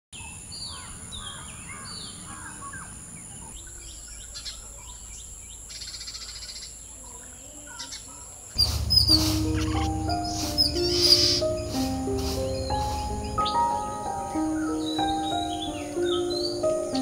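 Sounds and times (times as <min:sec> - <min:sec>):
bird chirps: 0:00.2 - 0:17.0
steady high-pitched whine: 0:02.8 - 0:17.0
bird whistled calls: 0:08.6 - 0:17.0.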